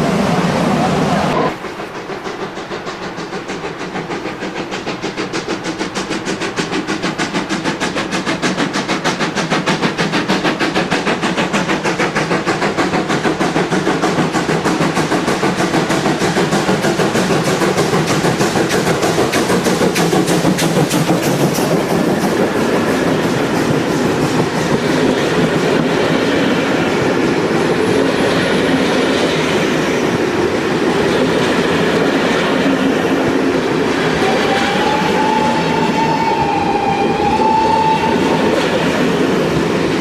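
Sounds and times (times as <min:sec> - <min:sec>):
steam locomotive exhaust beats: 0:00.0 - 0:40.0.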